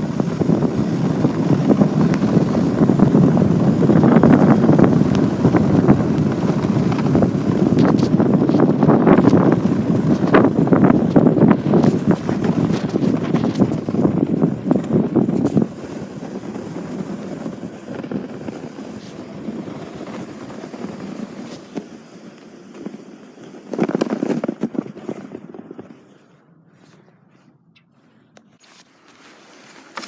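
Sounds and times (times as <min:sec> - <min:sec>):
wind buffeting microphone: 0:00.0 - 0:21.6
sled scraping on snow: 0:00.0 - 0:27.1, 0:28.6 - 0:30.0.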